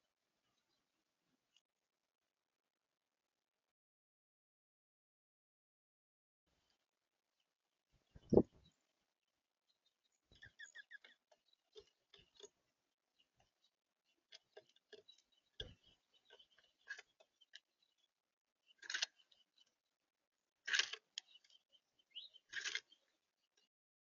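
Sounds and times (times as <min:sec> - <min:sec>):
birds pecking and hopping: 0:06.5 - 0:23.7.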